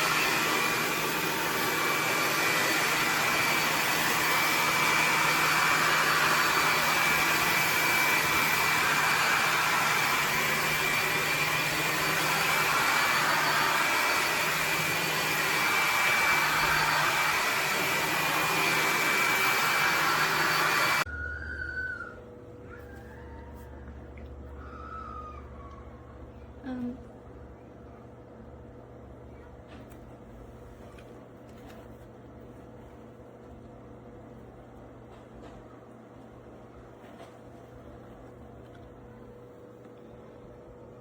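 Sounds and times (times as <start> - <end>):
vacuum cleaner whining: 0.0 - 25.7.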